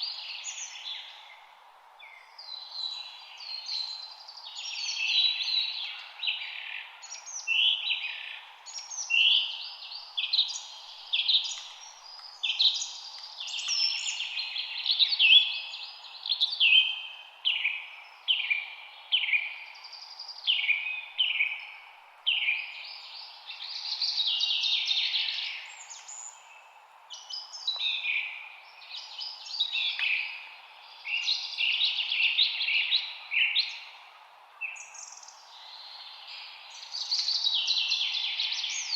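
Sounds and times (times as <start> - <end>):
faint background hiss: 0.0 - 38.9
songbirds chirping and singing: 0.0 - 38.9.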